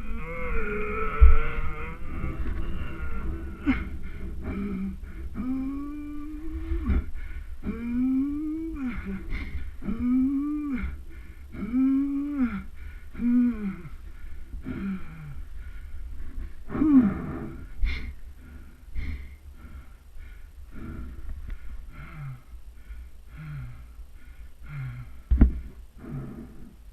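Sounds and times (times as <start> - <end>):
wind rumble on microphone: 0.0 - 11.4
person moaning in pain: 0.0 - 14.0, 14.6 - 15.4, 16.7 - 17.7
person gasping breaths: 0.0 - 26.9.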